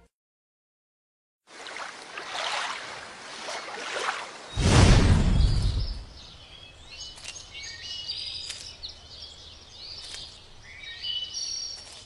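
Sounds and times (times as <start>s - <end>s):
birds chirping and whistling: 4.4s - 11.9s.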